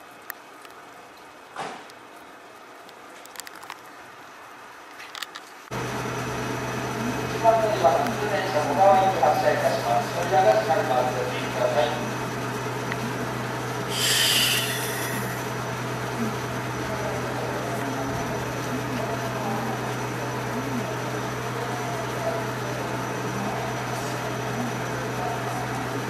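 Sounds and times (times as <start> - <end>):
train equipment low hum: 5.7 - 26.0
short hiss: 13.9 - 15.4.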